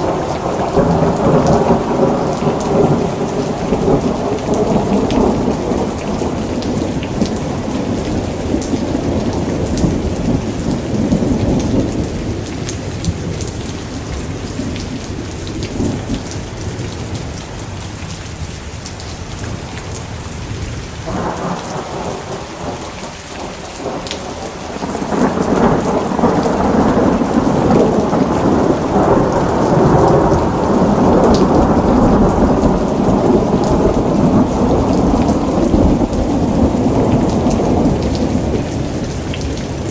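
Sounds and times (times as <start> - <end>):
rolling thunder: 0.0 - 17.3, 21.0 - 39.9
steady rain: 0.0 - 39.9.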